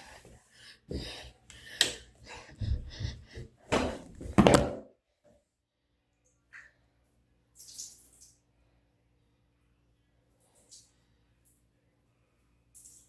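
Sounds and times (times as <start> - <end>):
thuds and knocks: 2.6 - 4.8.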